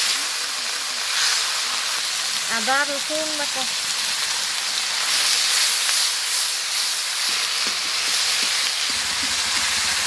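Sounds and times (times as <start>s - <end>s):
vegetables sizzling in hot oil: 0.0s - 10.0s
spatula scraping pan: 5.0s - 10.0s.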